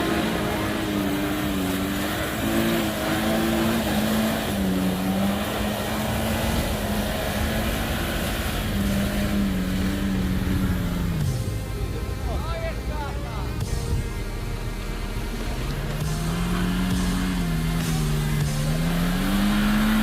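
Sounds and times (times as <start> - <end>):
off-road vehicle engine under load: 0.0 - 20.0.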